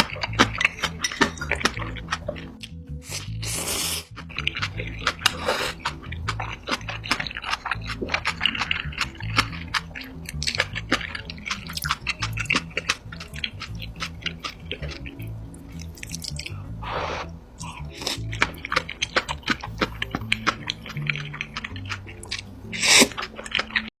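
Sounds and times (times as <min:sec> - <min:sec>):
background music with bass: 0:00.0 - 0:23.9
wet chewing of noodles: 0:00.0 - 0:23.9.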